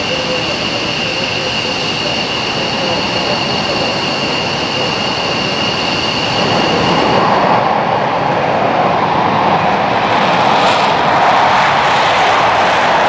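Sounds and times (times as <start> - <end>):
jet engine roar: 0.0 - 13.0
jet turbine whine: 0.0 - 13.0.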